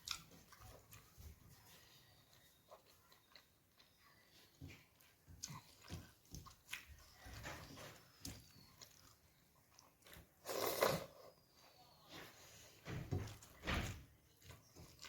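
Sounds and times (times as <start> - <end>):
chewing and mouth clicks: 0.0 - 11.2, 14.3 - 15.0.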